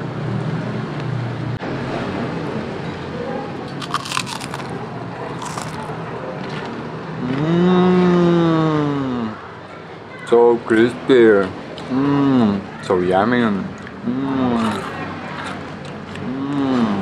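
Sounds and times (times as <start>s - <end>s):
crunching fried chicken skin: 3.7s - 4.8s, 5.4s - 5.9s
person humming mmm: 7.2s - 9.4s, 14.0s - 14.8s, 16.2s - 17.0s.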